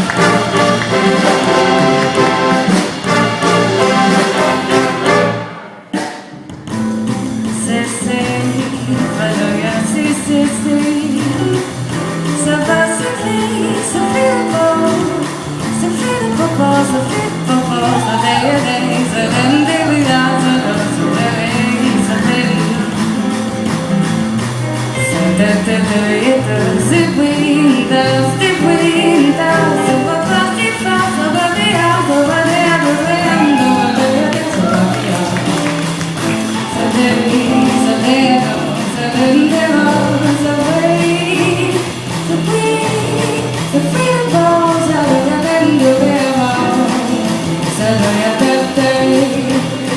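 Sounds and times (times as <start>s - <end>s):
big band playing: 0.0s - 49.9s.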